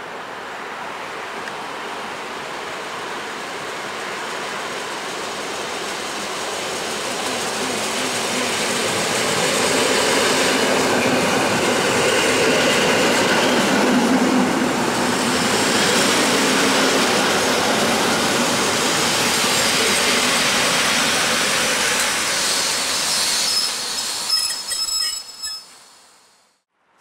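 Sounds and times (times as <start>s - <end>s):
train rail noise: 0.0s - 26.5s.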